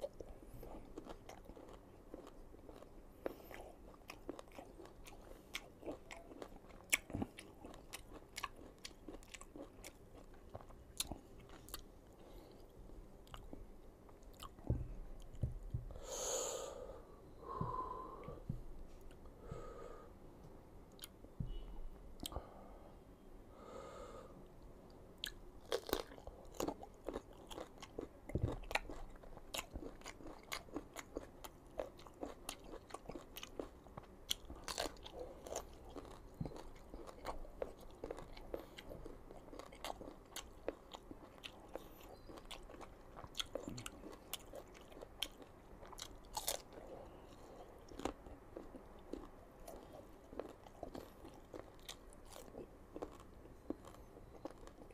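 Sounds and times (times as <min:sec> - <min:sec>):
crunchy biting and chewing: 0:25.2 - 0:54.9.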